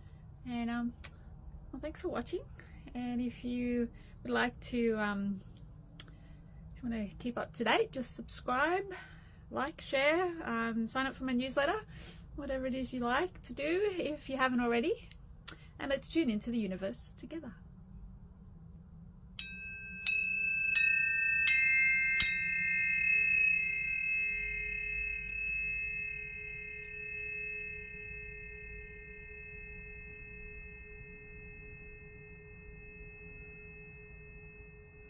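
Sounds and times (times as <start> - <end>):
tuning forks struck and ringing: 19.4 - 35.0.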